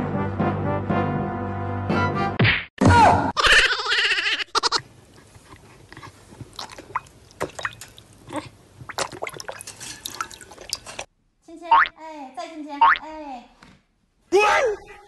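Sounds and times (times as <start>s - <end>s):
dog lapping water: 5.1s - 11.1s.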